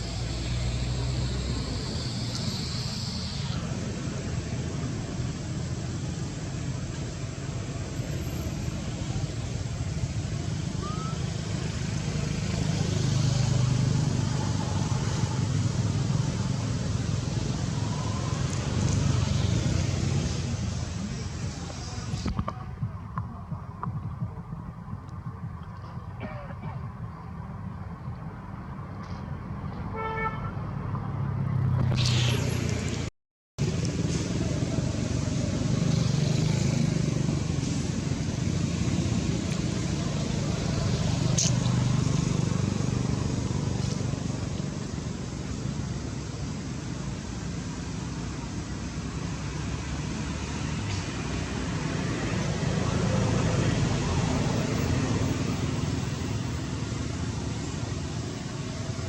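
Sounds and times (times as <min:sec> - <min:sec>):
faint whistle-like calls: 0:00.0 - 0:03.9, 0:10.7 - 0:11.4
light hiss: 0:00.0 - 0:14.1, 0:31.9 - 0:48.9
hiss: 0:00.0 - 0:22.3
low engine rumble: 0:00.0 - 0:59.0
steady low rumble: 0:20.4 - 0:29.8.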